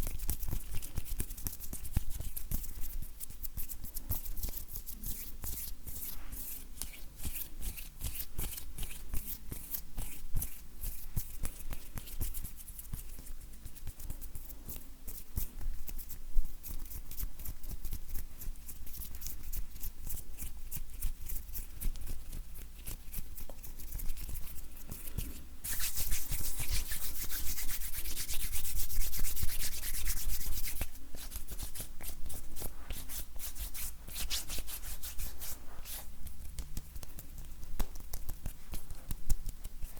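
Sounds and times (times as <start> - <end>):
dry hands rubbing together: 23.4 - 39.9.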